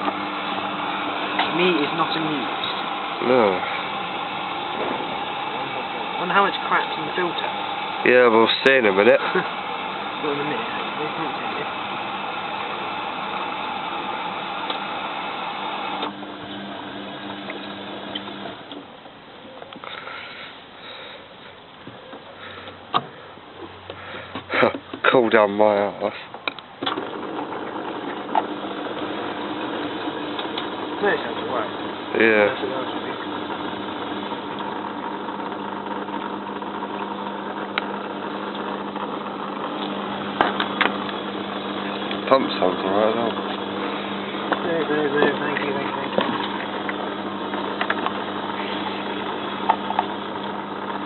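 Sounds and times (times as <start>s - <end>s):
washing machine hiss: 0.0s - 16.0s
water flowing: 0.0s - 18.7s
low motor hum: 0.0s - 19.6s, 26.9s - 51.0s.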